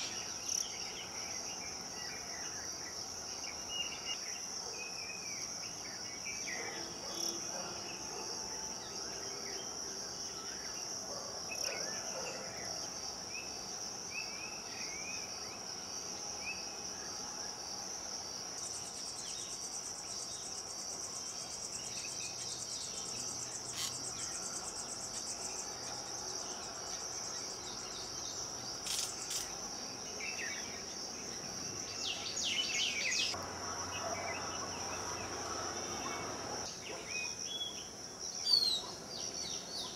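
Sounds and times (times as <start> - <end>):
pulsing insect trill: 0.0 - 36.7.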